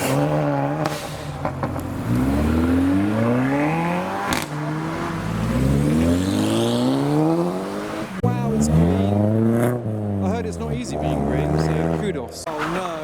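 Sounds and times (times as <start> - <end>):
sharp crack: 0.0 - 5.4
car engine accelerating hard: 0.0 - 13.0.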